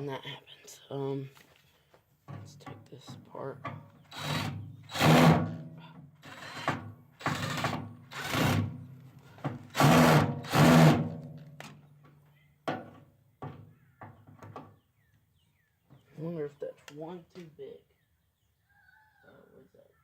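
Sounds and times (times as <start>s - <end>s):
cordless drill whirring: 4.1s - 5.3s, 6.2s - 8.7s.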